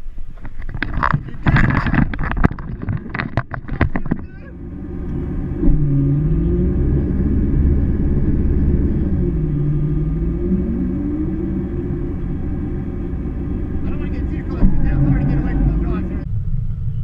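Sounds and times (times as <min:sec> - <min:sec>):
boat engine rumbling: 0:00.0 - 0:17.0
sharp irregular clatter: 0:00.3 - 0:04.4.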